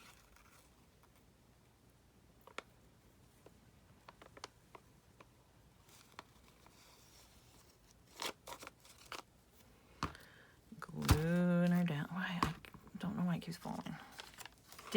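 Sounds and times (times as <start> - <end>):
paper rustle: 5.8 - 9.3, 13.9 - 14.9.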